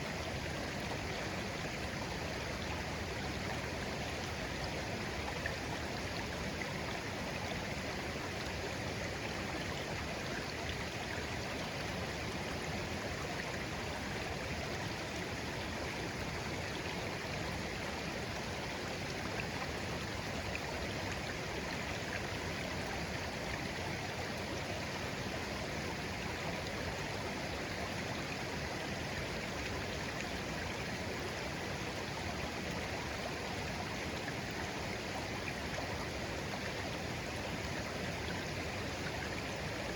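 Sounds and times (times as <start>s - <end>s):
babbling brook: 0.0s - 39.9s.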